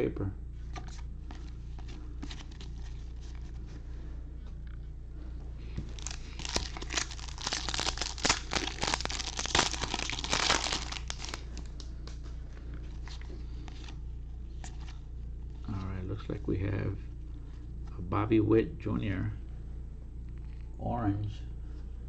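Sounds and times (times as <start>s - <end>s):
foil wrapper crinkling and tearing: 5.9s - 11.8s.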